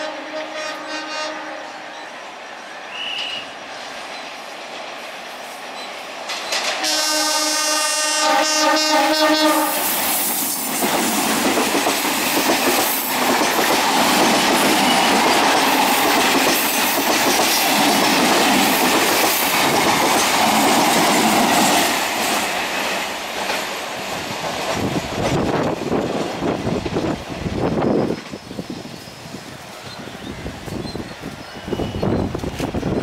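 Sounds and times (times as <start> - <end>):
wheels rumbling on rail: 0.0 - 33.0
clickety-clack over rail joints: 4.0 - 7.5, 10.0 - 28.5, 32.0 - 33.0.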